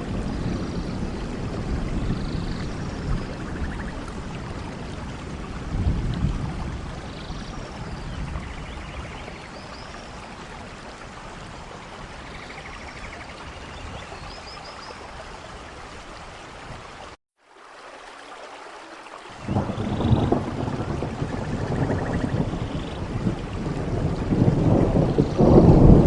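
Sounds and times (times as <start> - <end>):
low roll of thunder: 0.0 - 12.7, 19.4 - 26.0
rain hiss: 0.0 - 26.0.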